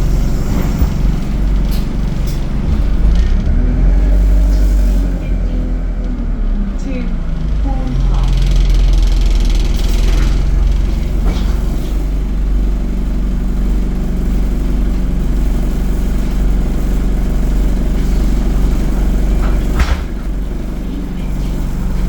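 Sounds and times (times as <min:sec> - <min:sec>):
bus diesel engine running: 0:00.0 - 0:22.0.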